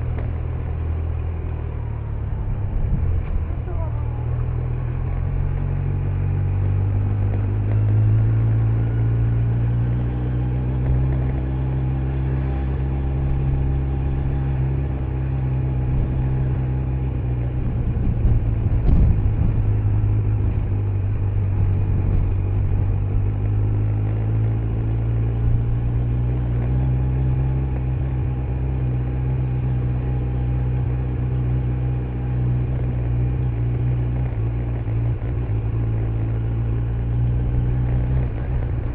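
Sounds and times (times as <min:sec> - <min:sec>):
motorcycle engine running: 0:00.0 - 0:38.9
brief thump: 0:18.7 - 0:19.6.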